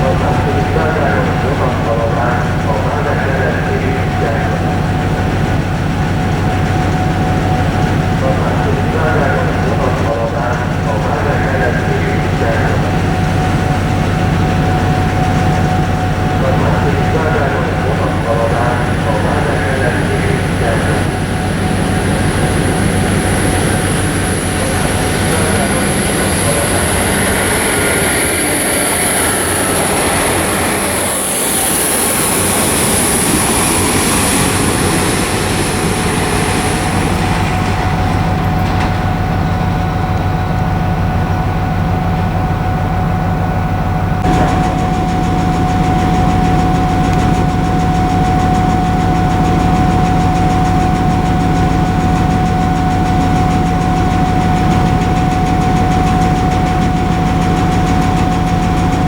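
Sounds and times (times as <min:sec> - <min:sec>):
high whine: 0:00.0 - 0:59.0
locomotive machine hum: 0:00.0 - 0:59.0
steady tone: 0:00.0 - 0:59.0.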